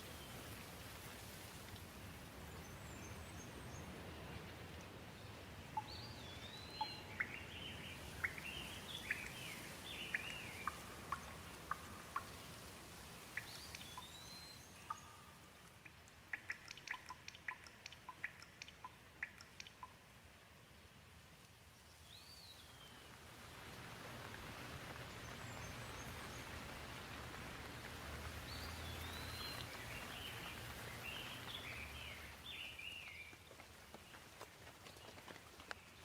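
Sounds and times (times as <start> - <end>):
gentle rain falling: 0.0 - 36.0
water drips: 0.0 - 36.0
bird chirping: 5.7 - 12.6, 13.3 - 15.5, 16.3 - 20.0, 28.5 - 33.4.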